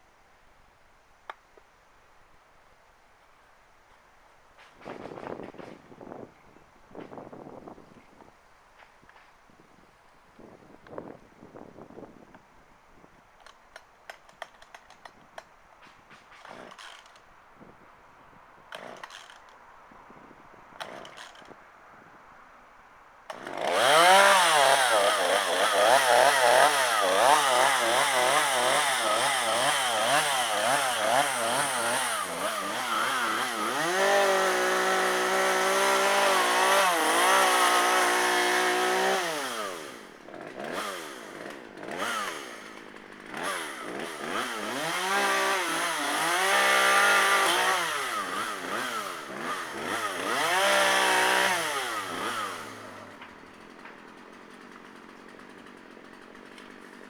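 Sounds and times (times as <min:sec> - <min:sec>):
chainsaw revving: 0:16.3 - 0:17.2, 0:18.7 - 0:19.5, 0:20.8 - 0:21.5, 0:23.3 - 0:57.0.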